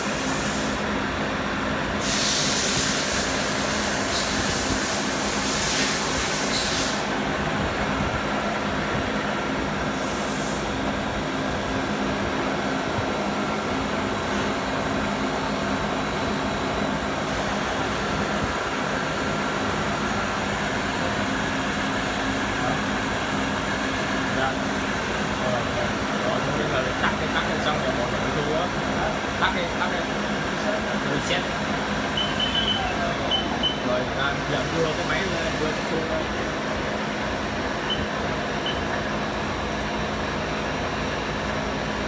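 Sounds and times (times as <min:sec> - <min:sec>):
compressed air hiss: 0:00.0 - 0:00.9, 0:02.0 - 0:07.2, 0:09.9 - 0:10.7
machinery hum: 0:00.0 - 0:42.0.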